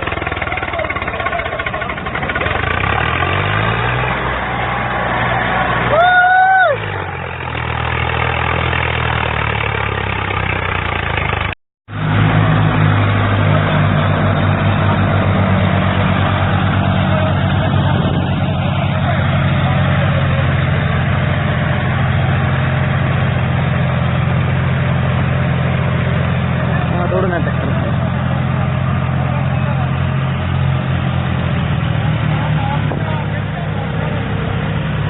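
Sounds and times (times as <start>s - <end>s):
tractor diesel engine running: 0.0s - 35.0s.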